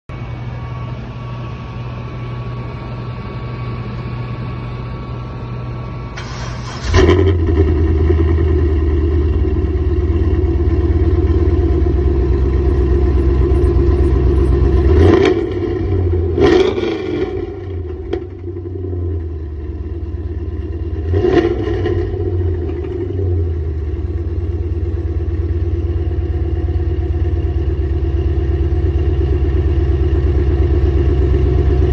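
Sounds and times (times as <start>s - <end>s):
car engine cranking and idling: 5.7s - 31.9s
engine revving: 6.2s - 19.3s, 20.7s - 23.6s.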